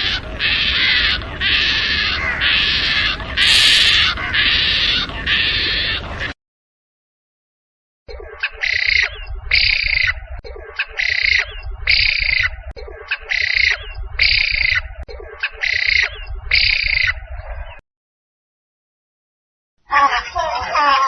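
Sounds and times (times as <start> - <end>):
bird harsh calls: 0.0 - 6.4, 8.2 - 17.8.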